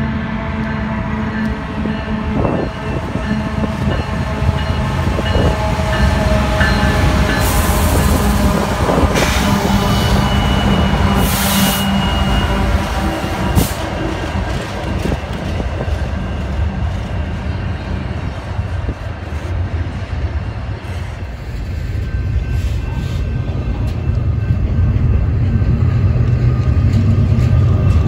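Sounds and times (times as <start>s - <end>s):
diesel locomotive engine drone: 0.0s - 28.0s
train wheels rolling on rails: 0.0s - 28.0s
high wheel squeal: 8.8s - 18.4s.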